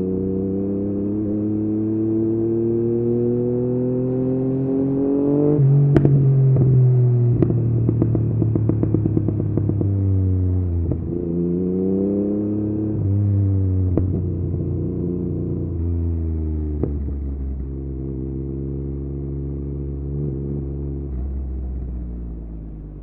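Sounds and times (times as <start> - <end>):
motorcycle engine revving: 0.0 - 23.0
exhaust pops and crackles: 5.8 - 10.0, 10.7 - 11.2, 13.8 - 14.8, 16.7 - 17.7.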